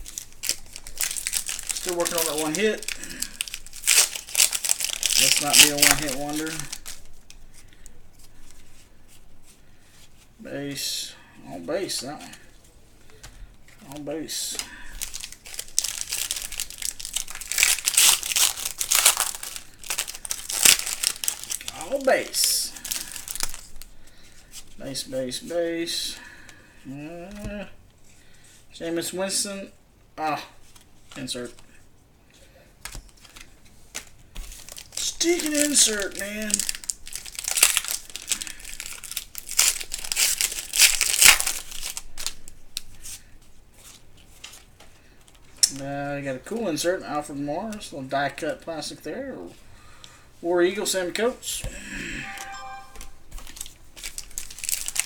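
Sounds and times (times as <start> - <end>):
foil wrapper crinkling: 0.0 - 8.7, 13.8 - 24.8, 32.8 - 45.8, 52.3 - 55.0
cards being handled: 0.0 - 9.6, 13.0 - 24.7, 32.8 - 45.8, 51.6 - 55.0.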